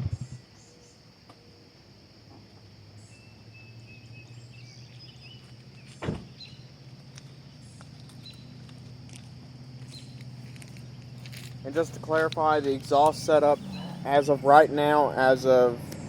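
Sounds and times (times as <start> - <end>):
car engine idling: 3.8 - 16.0.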